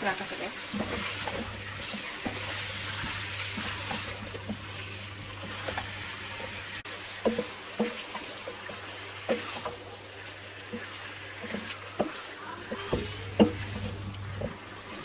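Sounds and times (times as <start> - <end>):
chicken sizzling in oil: 0.0 - 15.0.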